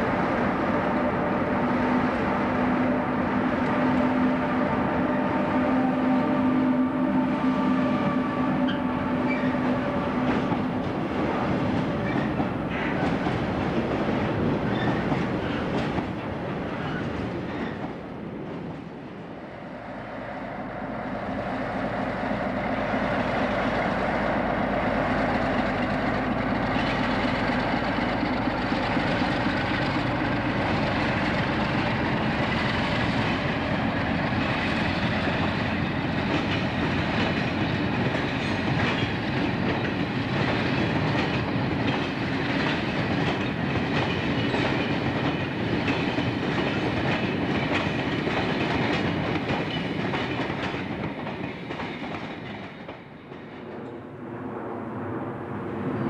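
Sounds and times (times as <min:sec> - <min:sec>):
electric locomotive humming: 0:00.0 - 0:56.0
train wheels clattering on rails: 0:08.7 - 0:19.3, 0:21.2 - 0:54.1.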